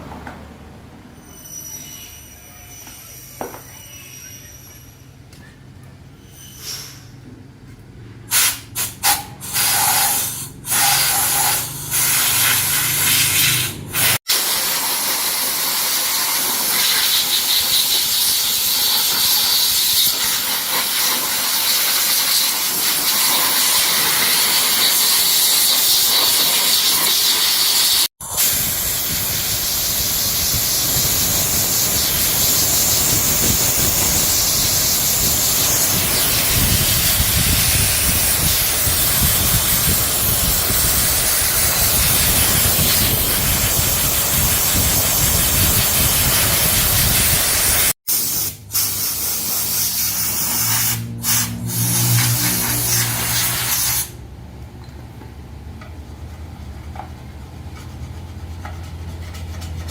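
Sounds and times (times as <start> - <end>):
loud hissing spray: 8.3 - 54.2.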